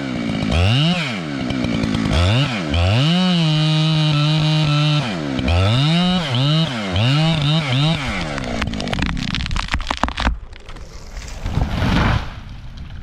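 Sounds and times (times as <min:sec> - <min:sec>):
chainsaw engine revving: 0:00.0 - 0:09.4.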